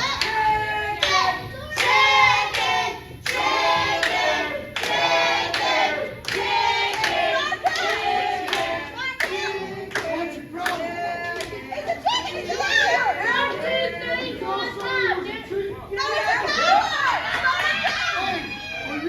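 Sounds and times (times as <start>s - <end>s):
hand clapping: 1.8s - 11.6s.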